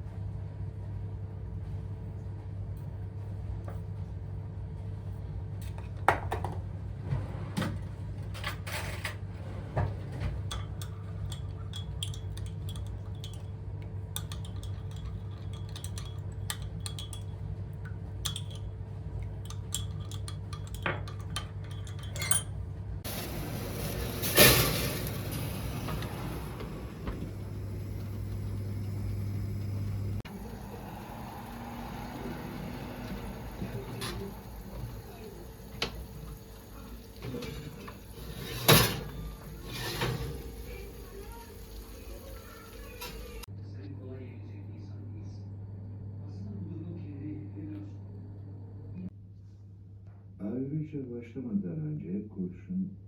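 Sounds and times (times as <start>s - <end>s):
dishes and cutlery clinking: 8.3s - 17.4s, 18.2s - 18.8s, 19.4s - 23.2s
steady low hum: 9.3s - 42.2s
hissing rush: 23.1s - 37.1s.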